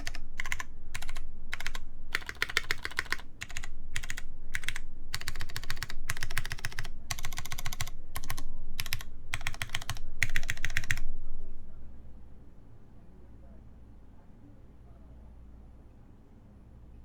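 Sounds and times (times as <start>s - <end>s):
mechanical keyboard typing: 0.0s - 11.1s.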